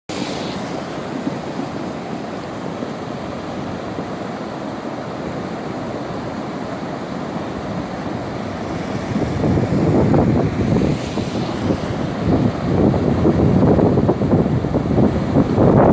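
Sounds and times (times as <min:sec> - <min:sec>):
rushing rainwater: 0:00.0 - 0:15.9.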